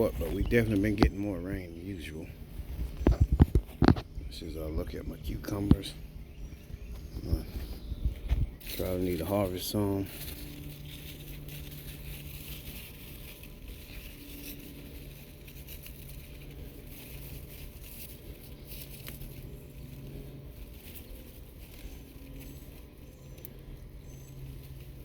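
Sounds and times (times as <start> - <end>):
low hum: 0.0 - 25.0
faint rustling and scuffing: 2.3 - 4.2, 5.4 - 23.5.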